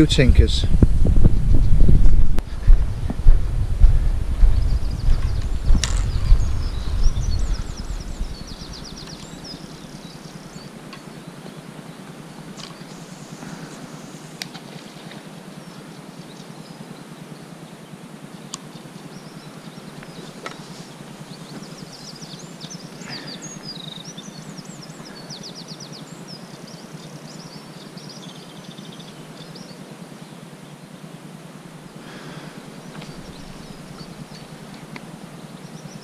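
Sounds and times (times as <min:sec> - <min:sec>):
low outdoor noise: 0:00.0 - 0:36.0
small birds singing: 0:01.3 - 0:36.0.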